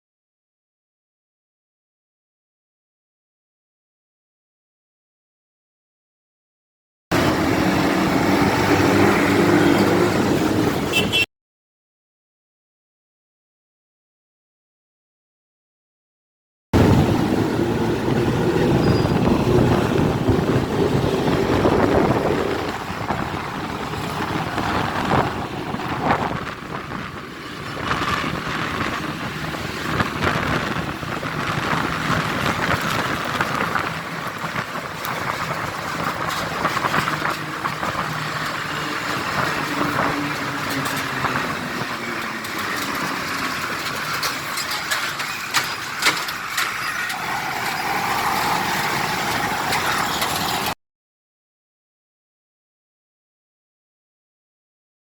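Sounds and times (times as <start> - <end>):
vehicles passing: 7.1 - 11.3, 16.8 - 50.8.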